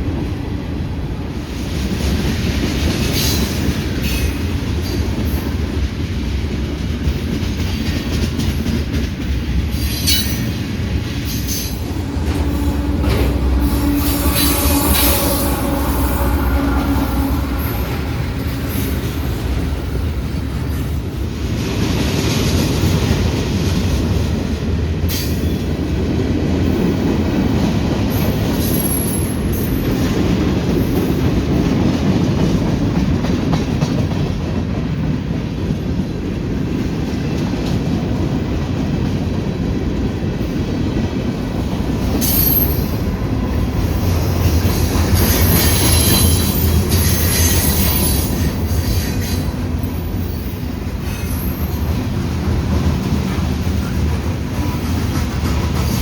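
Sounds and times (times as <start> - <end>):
train wheels rumbling on rail: 0.0 - 56.0
wheel squeals: 44.6 - 51.9.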